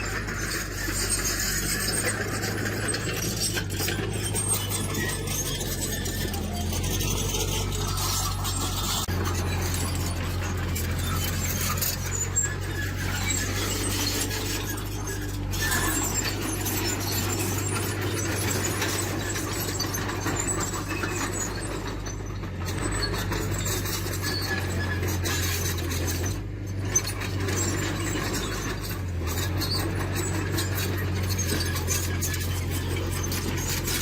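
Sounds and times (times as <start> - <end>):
diesel machine running: 0.0 - 34.0
metallic squealing and clinking: 0.0 - 34.0.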